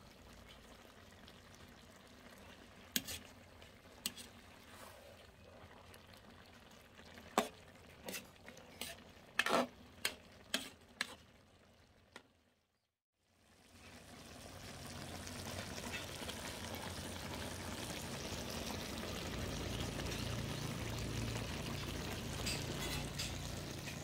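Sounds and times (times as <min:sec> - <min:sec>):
metal spatula scraping wok: 0:02.9 - 0:05.2, 0:07.4 - 0:11.3, 0:22.0 - 0:24.0.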